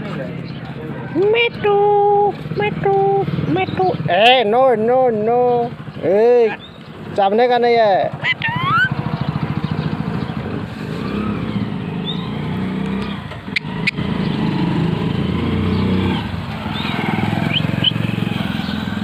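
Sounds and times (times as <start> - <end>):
vehicle engine running: 1.8 - 19.0
parrot chirps: 8.2 - 9.0.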